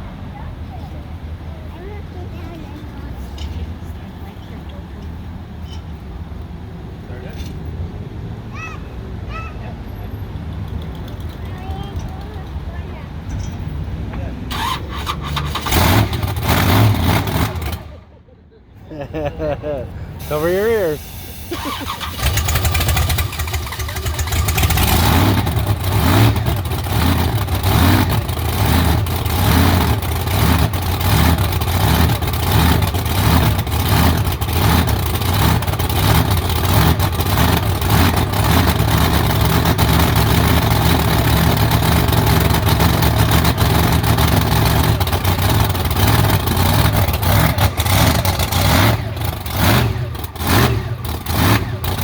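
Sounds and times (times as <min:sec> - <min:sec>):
truck engine revving: 0:14.3 - 0:18.1, 0:19.6 - 0:52.0.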